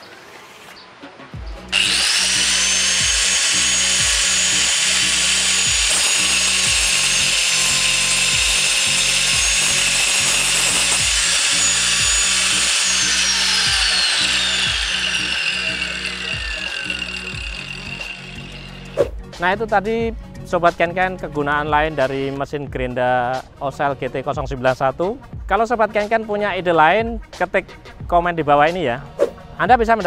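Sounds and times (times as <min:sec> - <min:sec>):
angle grinder whining: 0:01.6 - 0:19.1
blade rasping through wood: 0:01.7 - 0:19.0.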